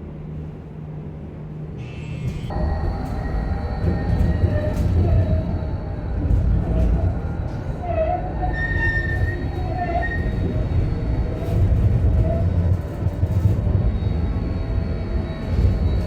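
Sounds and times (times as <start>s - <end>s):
tram rumbling on rails: 0.0s - 16.0s
high-pitched wheel squeal: 7.8s - 10.5s.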